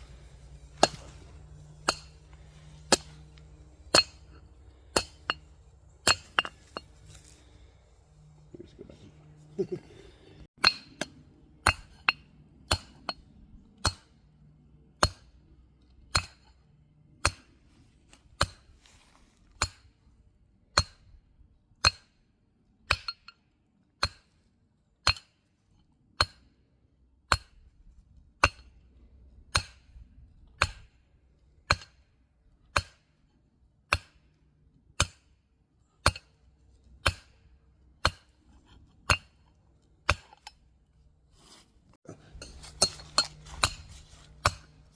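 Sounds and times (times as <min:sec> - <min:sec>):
hammer striking metal: 0:00.6 - 0:06.9, 0:42.4 - 0:44.7.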